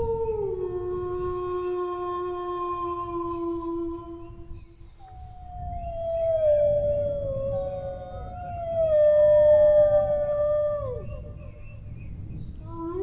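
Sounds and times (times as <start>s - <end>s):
dogs howling: 5.1s - 11.6s.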